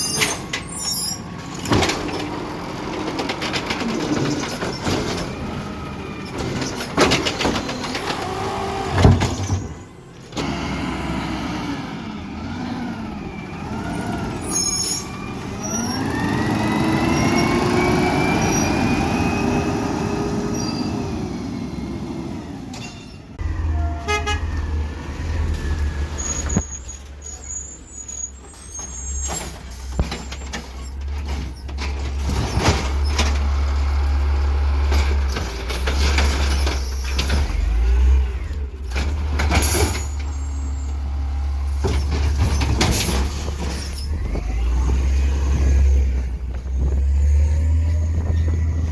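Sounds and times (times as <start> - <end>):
garbage truck engine revving: 0.0 - 48.9
loud knocks and clatter: 6.3 - 8.4, 29.3 - 33.6, 41.7 - 47.2.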